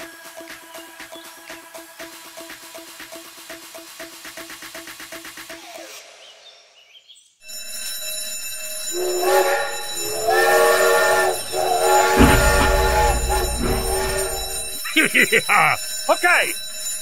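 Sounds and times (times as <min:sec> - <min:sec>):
toy train bell ringing: 0:07.4 - 0:17.0
toy train whistle blasts: 0:08.8 - 0:15.2
low rumble: 0:11.6 - 0:15.0.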